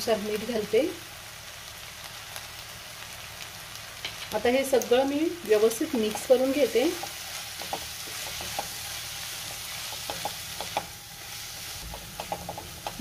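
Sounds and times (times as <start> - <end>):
masala sizzling in hot oil: 0.0 - 13.0
spatula scraping and tapping pan: 6.0 - 8.8, 9.4 - 11.0, 11.6 - 13.0.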